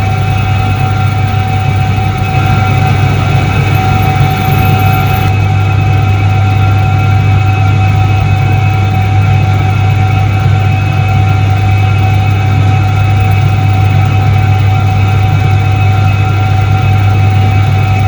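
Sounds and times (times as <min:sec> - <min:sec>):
washing machine motor hum: 0:00.0 - 0:05.4
high whine: 0:00.0 - 0:06.8.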